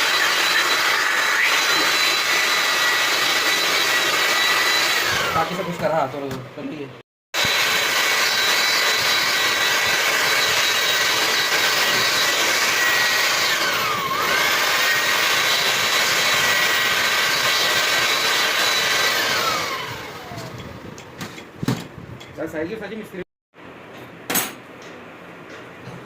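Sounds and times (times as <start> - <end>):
power tool motor whining: 0.0 - 5.9, 7.4 - 20.7.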